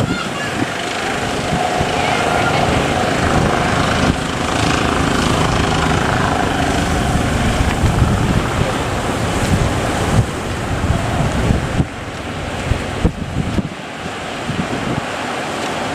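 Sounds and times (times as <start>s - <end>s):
boat engine rumble: 0.0s - 15.9s
surf breaking: 0.0s - 15.9s
wind buffeting microphone: 0.0s - 15.9s.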